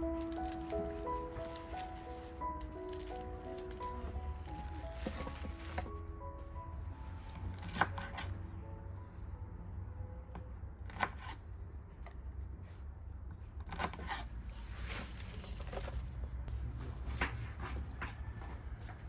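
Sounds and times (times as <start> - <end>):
knife cutting and scraping: 0.1 - 5.9, 7.4 - 8.4, 10.9 - 11.4, 13.6 - 15.9.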